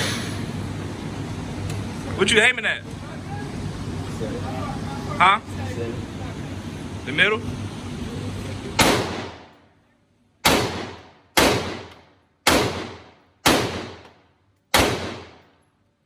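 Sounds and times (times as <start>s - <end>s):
gunshots with ringing echo: 8.8s - 9.5s, 10.4s - 14.1s, 14.7s - 15.4s.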